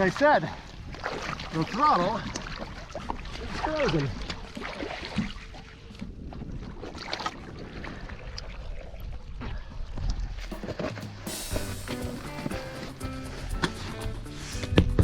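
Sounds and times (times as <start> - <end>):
water splashing: 0.0 - 15.0
jet ski engine rumble: 10.5 - 15.0.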